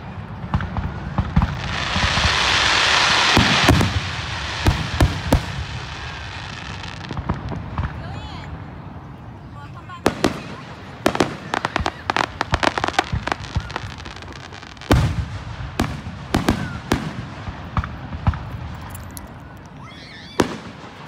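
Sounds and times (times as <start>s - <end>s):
fireworks heavy boom: 0.0s - 18.9s, 20.3s - 21.0s
fireworks bangs: 0.0s - 21.0s
fireworks crackling pops: 0.2s - 8.7s, 9.8s - 21.0s.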